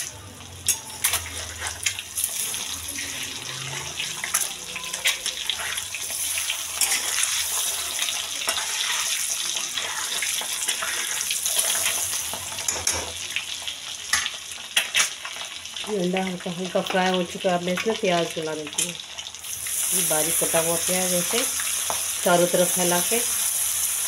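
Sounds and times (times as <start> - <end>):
eggs sizzling in hot oil: 0.0 - 24.0.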